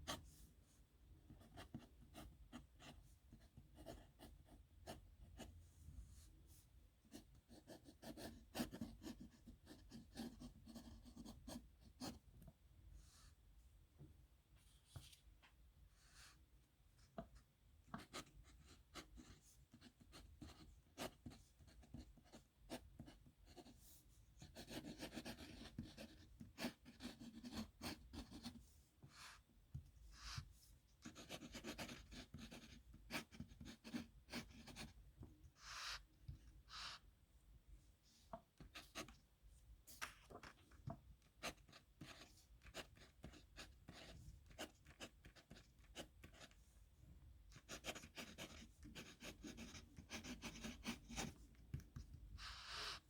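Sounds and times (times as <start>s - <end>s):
pen scratching on paper: 7.5s - 12.2s, 24.4s - 29.4s, 30.2s - 34.9s, 41.4s - 46.6s, 47.5s - 53.0s.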